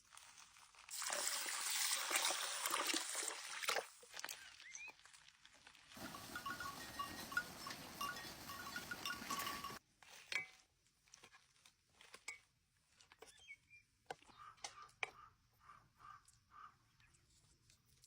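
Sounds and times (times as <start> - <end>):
steady rushing kitchen noise: 6.0 - 9.8
utensils clinking on dishes: 6.0 - 9.8.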